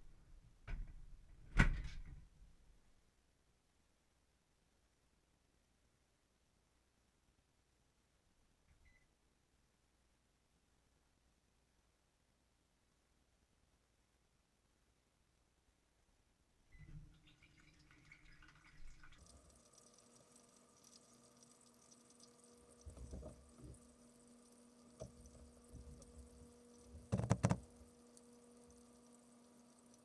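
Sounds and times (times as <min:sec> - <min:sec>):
water splashing and dripping: 0:17.1 - 0:30.0
dishwasher motor hum: 0:18.6 - 0:30.0.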